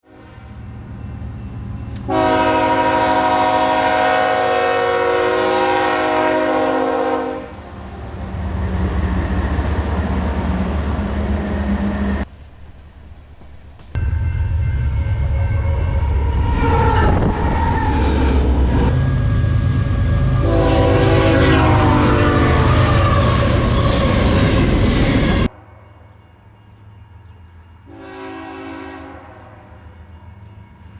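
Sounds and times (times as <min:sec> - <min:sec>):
train passing: 0:00.0 - 0:30.9
locomotive engines rumbling: 0:00.5 - 0:25.5
locomotive air horn: 0:02.0 - 0:12.2, 0:15.8 - 0:24.9, 0:27.9 - 0:29.8.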